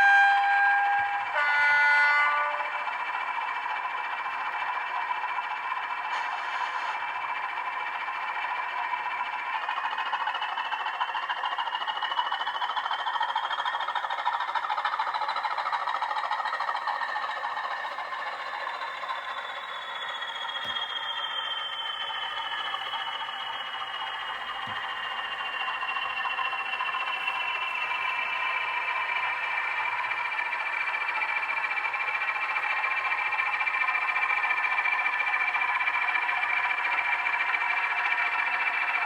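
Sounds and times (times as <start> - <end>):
diesel engine sound through speaker: 0.0 - 39.0.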